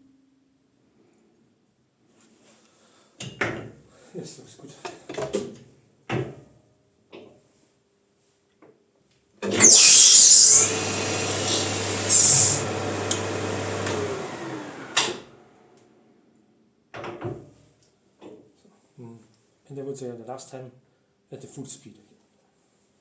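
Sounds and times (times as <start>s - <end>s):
lathe winding down: 9.5s - 15.6s
high-pitched hissing bursts: 9.6s - 10.8s, 11.4s - 12.7s
lathe motor hum: 9.6s - 15.6s.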